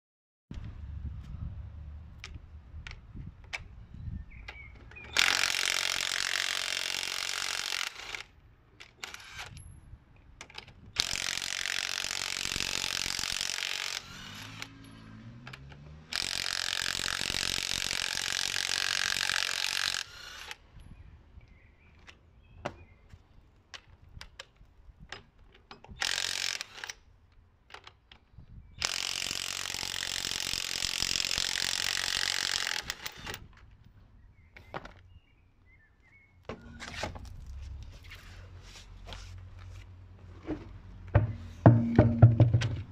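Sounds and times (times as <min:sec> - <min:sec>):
tools clicking and knocking: 0:14.7 - 0:15.9, 0:27.7 - 0:28.3, 0:40.5 - 0:42.9.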